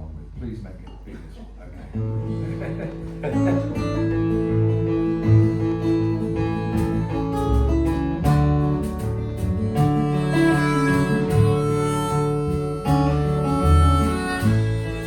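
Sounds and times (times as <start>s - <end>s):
acoustic guitar strumming: 2.0s - 15.0s.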